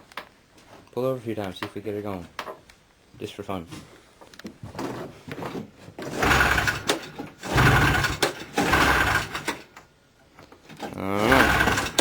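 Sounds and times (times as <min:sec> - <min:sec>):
pull-starter engine cranking: 0:06.1 - 0:09.7, 0:10.8 - 0:12.0.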